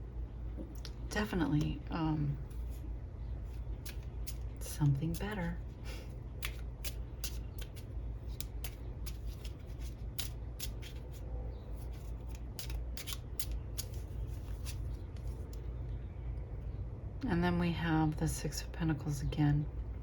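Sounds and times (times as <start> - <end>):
steady low hum: 0.0 - 20.0
cards being shuffled: 3.5 - 5.7, 6.3 - 15.6.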